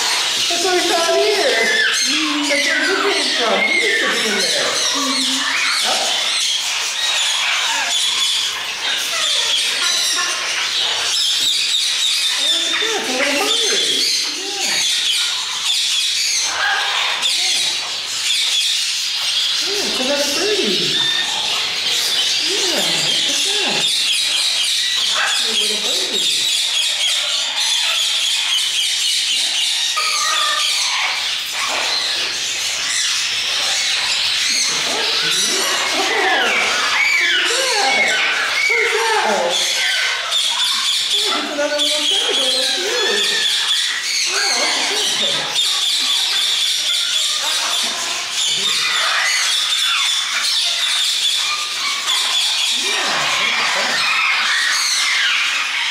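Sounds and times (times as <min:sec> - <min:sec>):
parrots chattering and squawking: 0:00.0 - 0:55.9.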